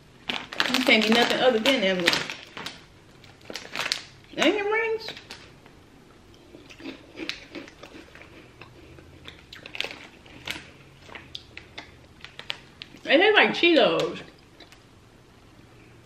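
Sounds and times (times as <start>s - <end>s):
person chewing crunchy snack: 6.5s - 13.0s.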